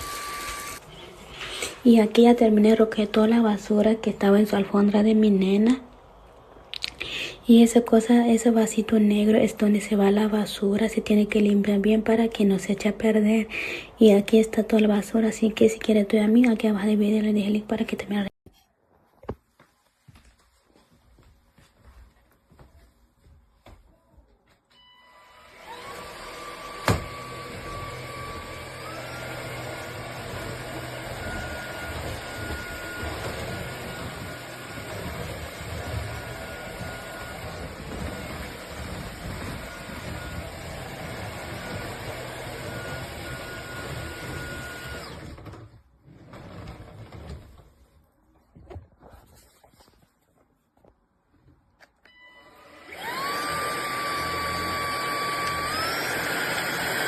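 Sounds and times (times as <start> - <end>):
vacuum motor whining: 0.0 - 1.8, 25.0 - 47.2, 52.1 - 57.0.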